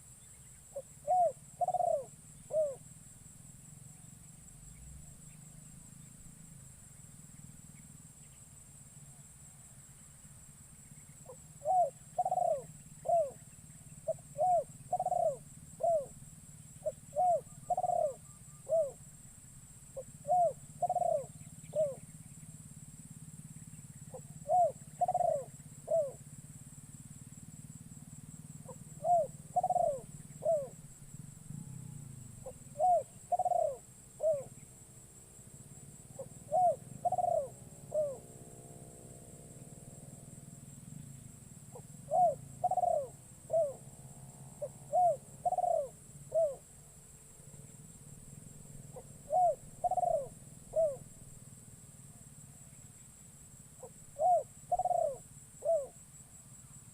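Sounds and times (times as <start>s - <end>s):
dove cooing: 0.7s - 2.8s, 11.2s - 16.2s, 16.8s - 19.0s, 20.0s - 22.2s, 24.0s - 26.3s, 28.6s - 34.6s, 36.1s - 38.3s, 41.7s - 43.9s, 44.6s - 46.7s, 48.9s - 51.1s, 53.8s - 56.0s.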